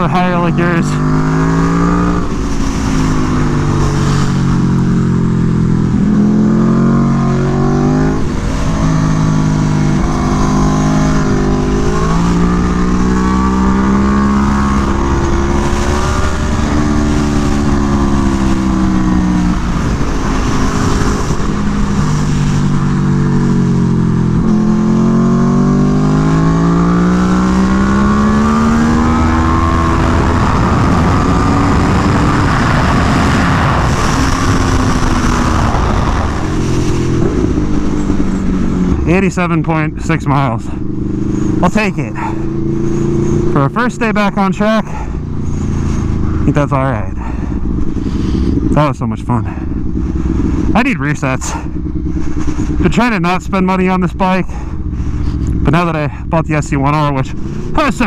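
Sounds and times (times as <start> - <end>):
wind rushing: 0.0 - 39.1
motorcycle engine revving: 0.0 - 58.0.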